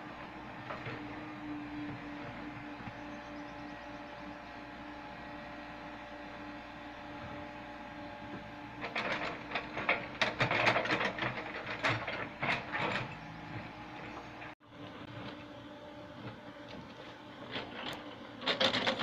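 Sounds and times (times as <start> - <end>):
excavator diesel engine running: 0.0 - 19.0
excavator clattering: 8.4 - 14.6, 17.5 - 19.0.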